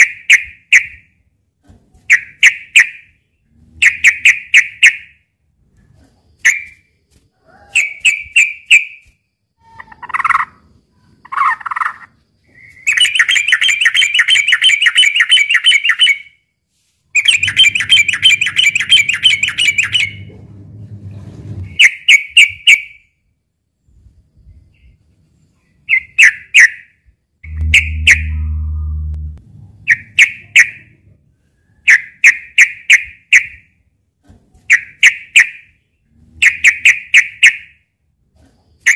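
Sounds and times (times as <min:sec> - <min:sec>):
bird rapid trills: 0:17.2 - 0:20.3
low hum: 0:17.4 - 0:21.8, 0:27.4 - 0:31.4
bird singing bubbly notes: 0:27.4 - 0:30.4.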